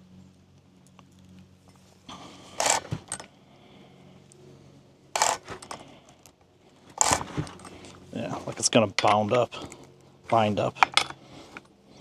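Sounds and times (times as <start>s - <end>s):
chainsaw chain rattling and scraping: 2.1s - 3.4s, 5.1s - 12.0s.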